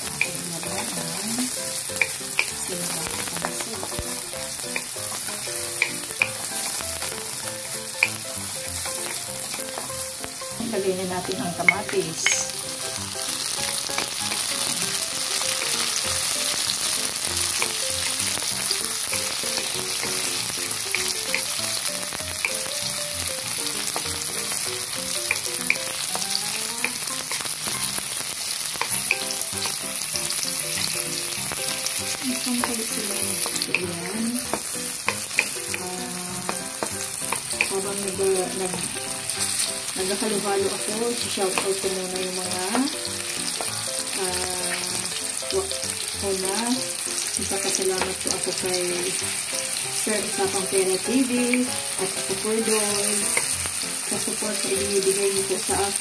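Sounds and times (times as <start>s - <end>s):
vegetables sizzling in oil: 0.0s - 56.0s.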